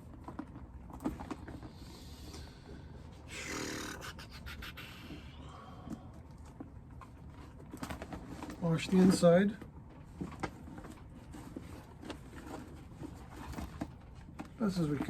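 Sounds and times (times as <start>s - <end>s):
light handling clicks and rustles: 0.0s - 2.5s, 5.9s - 15.0s
breathy rush of noise: 3.3s - 6.2s.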